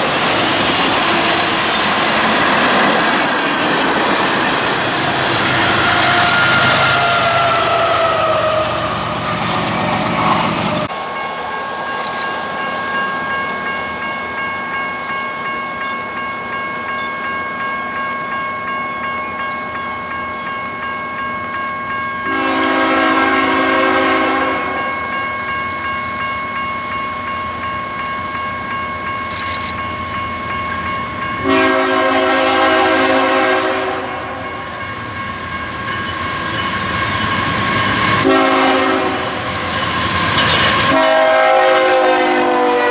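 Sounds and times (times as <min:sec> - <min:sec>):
train running on rails: 0:00.0 - 0:42.9
high ringing tone: 0:01.7 - 0:42.1
locomotive horn blasts: 0:05.3 - 0:15.1, 0:22.2 - 0:25.5, 0:31.4 - 0:34.8, 0:37.9 - 0:39.6, 0:40.5 - 0:42.9.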